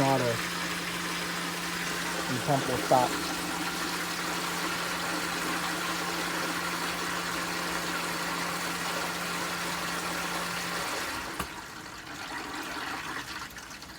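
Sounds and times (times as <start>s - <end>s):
water rushing: 0.0s - 10.8s
pool pump humming: 0.0s - 13.9s
water trickling in pipes: 0.0s - 13.9s.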